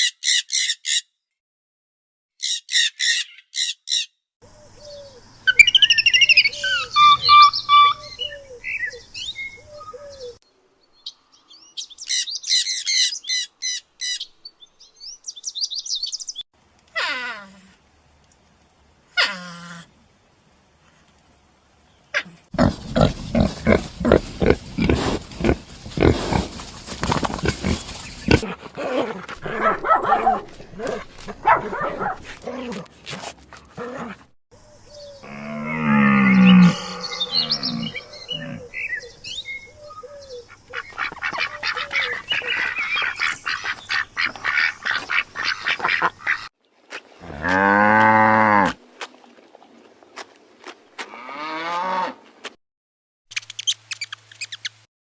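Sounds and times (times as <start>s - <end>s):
drawn-out pitched animal call: 6.3s - 8.4s, 22.6s - 30.0s, 35.2s - 38.9s
rapid pulsed animal calls: 22.6s - 28.6s.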